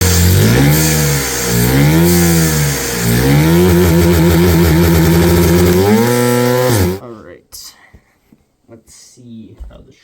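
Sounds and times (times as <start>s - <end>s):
small piston engine revving: 0.0s - 7.0s.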